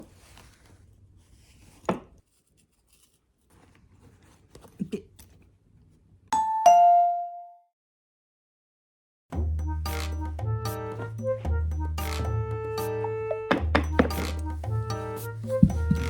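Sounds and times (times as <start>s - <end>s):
faint handling sounds: 0.0s - 6.2s
two-note ding-dong chime: 6.4s - 7.6s.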